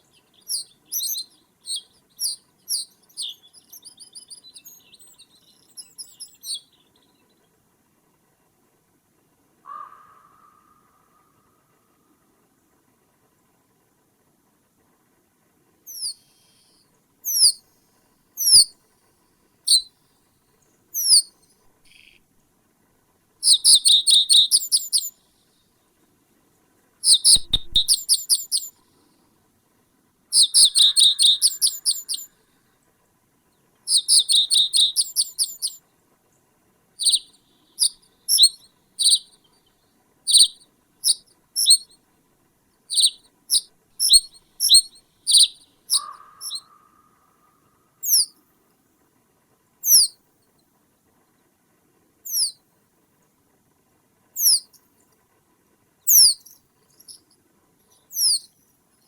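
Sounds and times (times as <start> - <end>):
songbird calling and trilling: 0.0 - 7.3, 15.9 - 17.6, 18.4 - 18.8, 19.7 - 19.9, 21.0 - 22.2, 23.4 - 25.2, 27.0 - 28.8, 30.3 - 32.3, 33.9 - 35.8, 37.0 - 42.0, 42.9 - 47.2, 48.0 - 48.4, 49.8 - 50.2, 52.3 - 52.6, 54.4 - 54.8, 56.1 - 57.2, 57.9 - 58.6.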